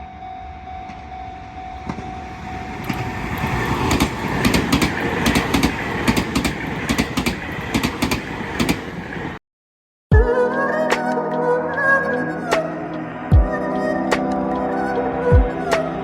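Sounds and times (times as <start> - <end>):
train wheels clicking over rail joints: 2.8 - 9.4.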